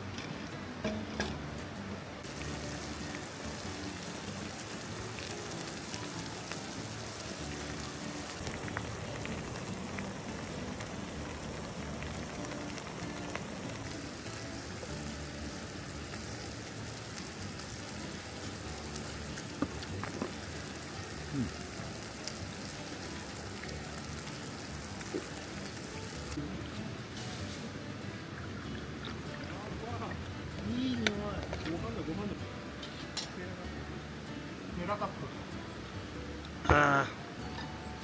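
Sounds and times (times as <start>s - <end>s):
food sizzling in a hot pan: 2.2s - 26.4s, 27.1s - 28.1s.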